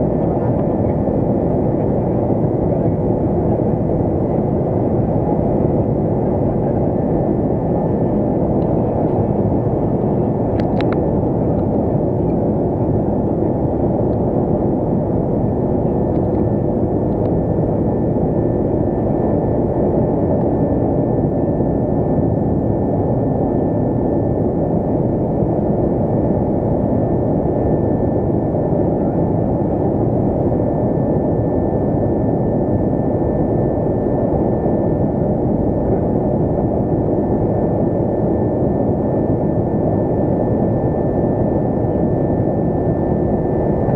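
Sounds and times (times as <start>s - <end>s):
faint steady whine: 0.0s - 43.9s
jet engine roar in cabin: 0.0s - 43.9s.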